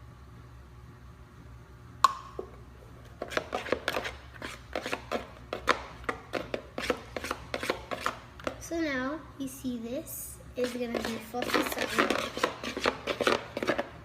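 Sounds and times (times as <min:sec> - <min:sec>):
spoon stirring slime: 0:03.1 - 0:08.7, 0:10.6 - 0:14.0.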